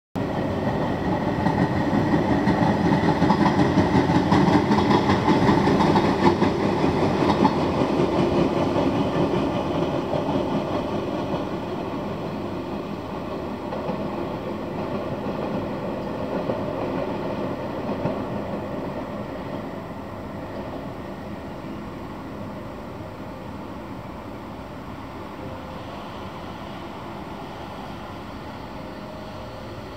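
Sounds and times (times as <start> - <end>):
electric train running on track: 0.2 - 29.9.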